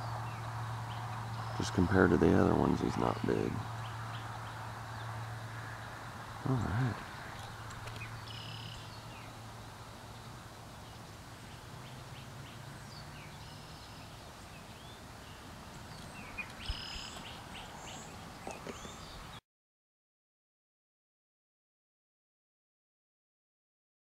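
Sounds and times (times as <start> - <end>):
birds chirping: 0.0 - 19.4
outdoor background noise: 0.0 - 19.4
short high bird call: 8.3 - 8.9, 16.6 - 17.3.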